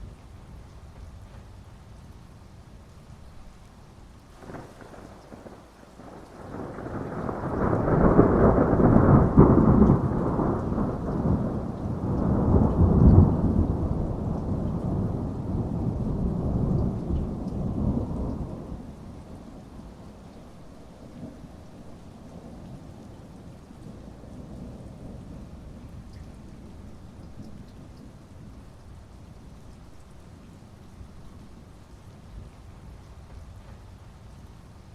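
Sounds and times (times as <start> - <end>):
heavy rain: 0.0 - 34.9
thunder rumbling: 4.4 - 28.6.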